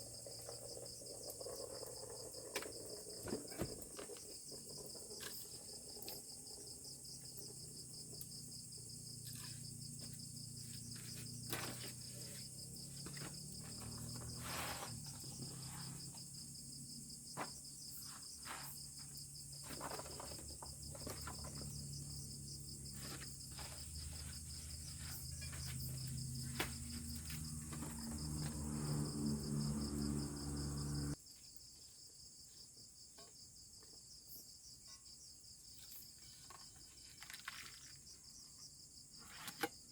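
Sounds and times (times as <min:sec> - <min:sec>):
crickets and insects trilling: 0:00.0 - 0:31.6
low wavering hum: 0:23.6 - 0:31.2.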